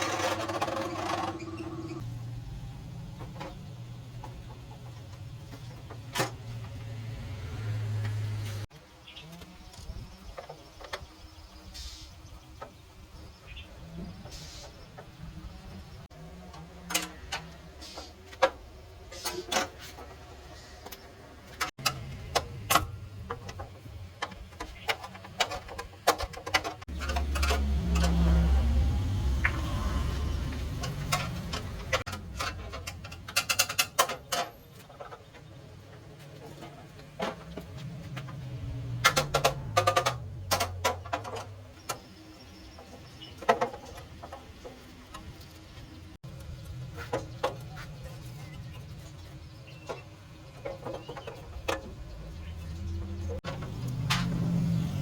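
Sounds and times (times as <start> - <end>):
sharp clicks and knocks: 20.8 - 28.7, 29.3 - 54.7.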